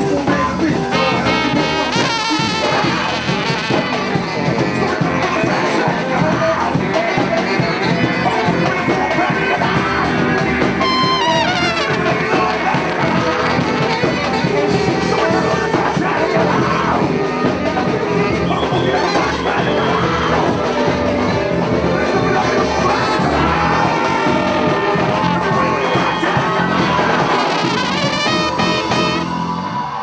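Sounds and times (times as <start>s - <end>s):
percussion rhythm: 0.0s - 19.7s, 20.4s - 29.4s
latin band playing: 0.0s - 30.0s
horns playing held notes: 0.9s - 6.2s, 10.6s - 15.5s, 17.0s - 29.9s.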